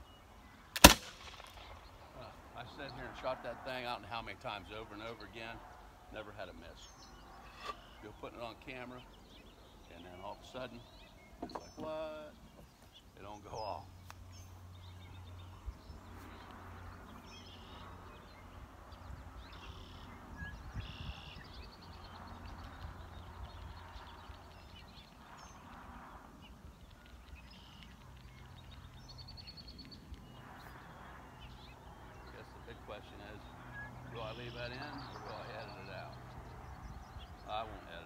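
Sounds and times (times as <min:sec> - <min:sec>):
birds chirping and trilling: 0:00.0 - 0:38.0
faint clicks: 0:26.8 - 0:30.4.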